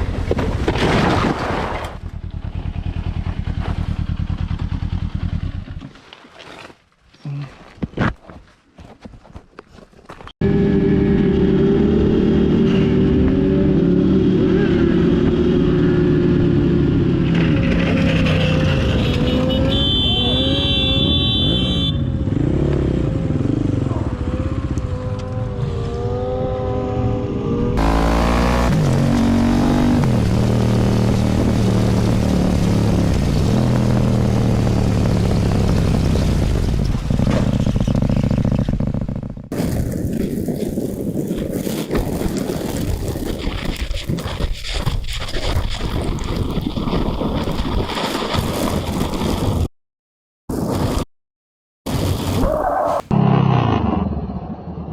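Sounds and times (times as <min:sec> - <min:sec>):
motorcycle engines revving: 0:10.4 - 0:39.5.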